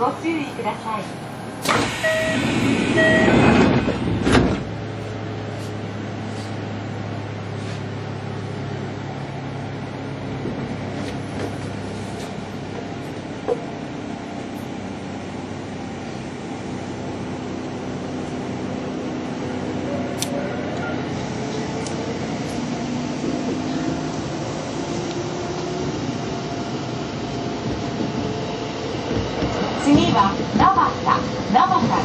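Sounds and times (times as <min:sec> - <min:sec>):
train running hum: 0:00.0 - 0:32.0
doors sliding shut: 0:01.6 - 0:04.8
train door chime: 0:01.7 - 0:03.5.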